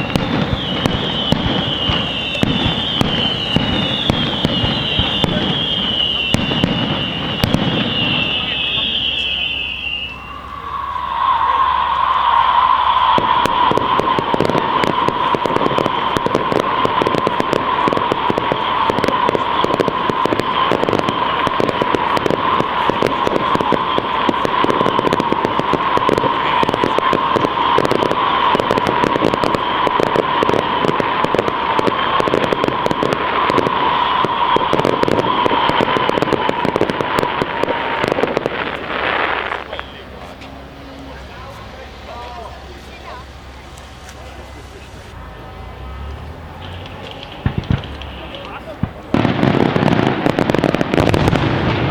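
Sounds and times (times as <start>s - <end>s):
fireworks crackling: 0.0s - 51.9s
steady high tone: 8.2s - 38.0s.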